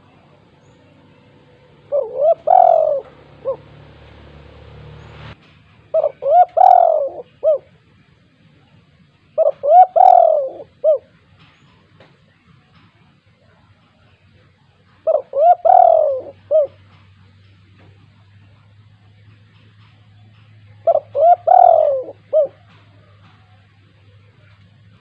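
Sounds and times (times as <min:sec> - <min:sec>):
dove cooing: 0:00.0 - 0:05.2, 0:05.9 - 0:07.8, 0:09.3 - 0:11.1, 0:15.0 - 0:17.2, 0:20.4 - 0:23.8.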